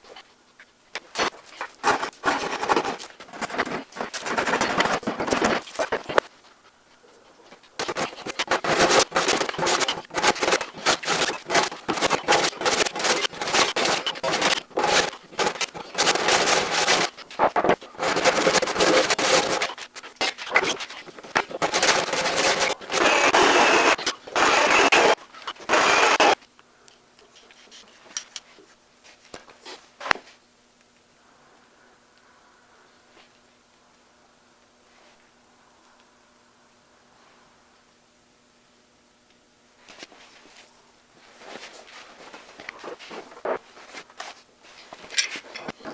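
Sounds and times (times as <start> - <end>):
hand tool scraping wood: 1.0 - 26.4.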